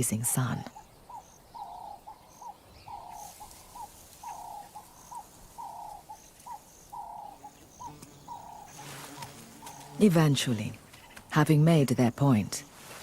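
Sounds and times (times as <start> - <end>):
dove cooing: 1.6 - 10.2.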